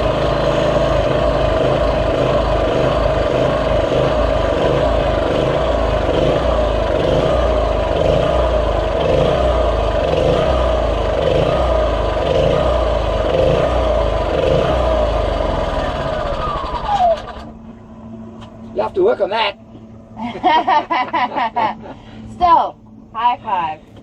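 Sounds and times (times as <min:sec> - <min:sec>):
small petrol engine running: 0:00.0 - 0:18.3.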